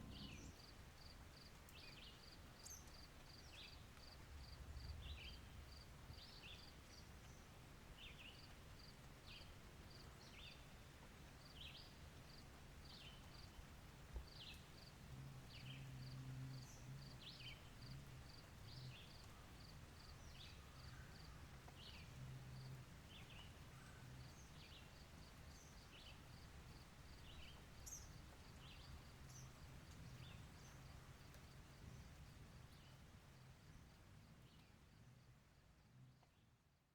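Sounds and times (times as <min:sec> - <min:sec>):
bird chirping: 0:00.0 - 0:00.6
low hum: 0:00.0 - 0:00.6.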